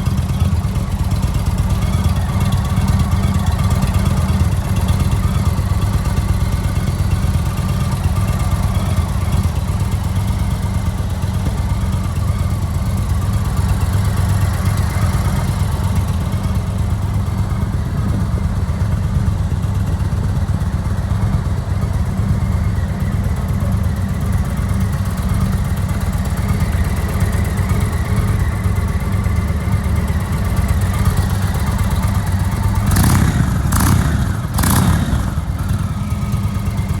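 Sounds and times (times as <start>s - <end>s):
motorcycle engine idling: 0.0s - 37.0s.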